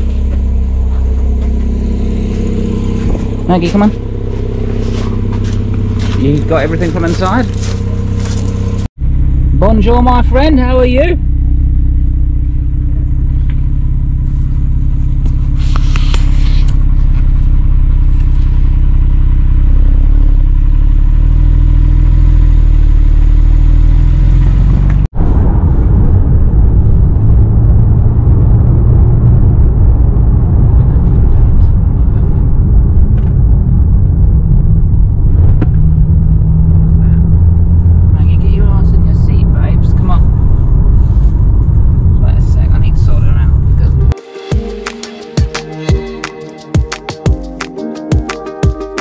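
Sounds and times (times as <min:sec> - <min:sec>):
road noise: 0:00.0 - 0:47.9
car engine running: 0:00.0 - 0:49.0.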